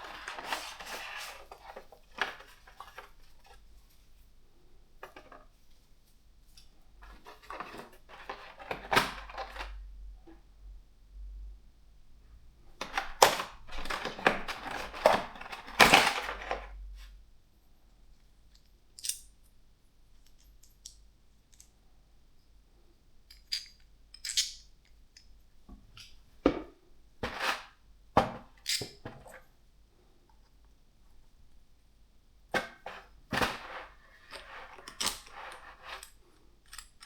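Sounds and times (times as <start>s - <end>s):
packaging rustling: 0.0s - 3.5s.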